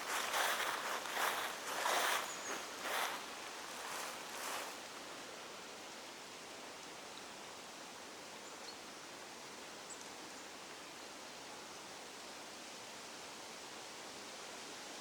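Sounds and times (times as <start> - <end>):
forest background hiss: 0.0 - 15.0.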